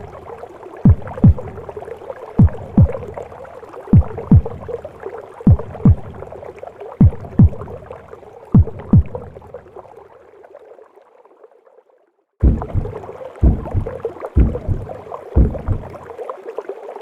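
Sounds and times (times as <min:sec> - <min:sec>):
heartbeat double thumps: 0:00.8 - 0:01.7, 0:02.4 - 0:03.2, 0:03.9 - 0:04.8, 0:05.5 - 0:06.3, 0:07.0 - 0:07.8, 0:08.6 - 0:09.4, 0:12.4 - 0:16.0
whooshing gurgling wash: 0:12.4 - 0:16.0.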